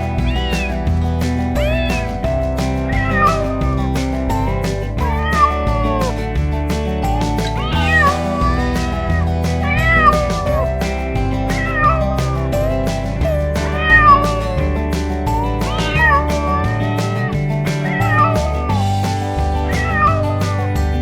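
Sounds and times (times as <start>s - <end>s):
cats meowing: 0.0s - 2.3s, 7.1s - 10.8s, 11.4s - 18.8s
background music with beat: 0.0s - 21.0s.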